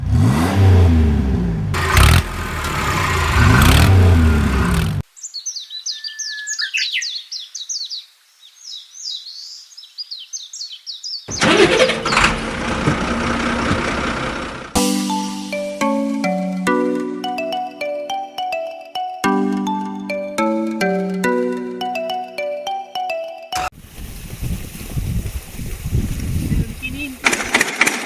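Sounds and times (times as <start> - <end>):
vehicle engine revving: 0.0 - 5.0, 11.3 - 14.8
birds chirping: 5.0 - 12.4, 25.0 - 27.6.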